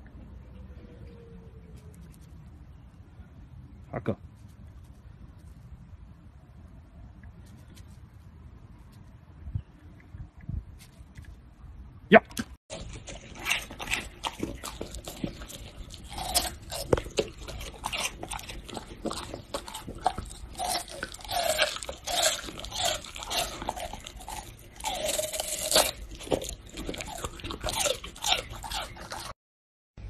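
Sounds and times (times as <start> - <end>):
dog gnawing on a chew: 12.7 - 29.4.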